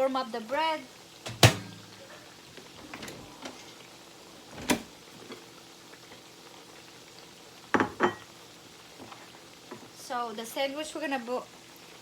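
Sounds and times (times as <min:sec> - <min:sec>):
faint kitchen background noise: 0:00.0 - 0:12.0
sharp knock: 0:01.3 - 0:01.8.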